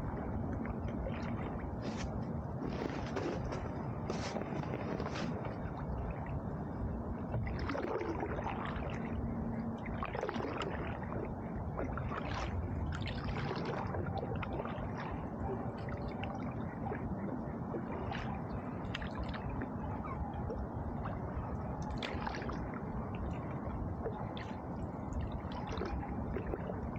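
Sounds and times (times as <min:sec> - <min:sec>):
paddle splashing in water: 0:11.8 - 0:15.0, 0:21.9 - 0:22.6.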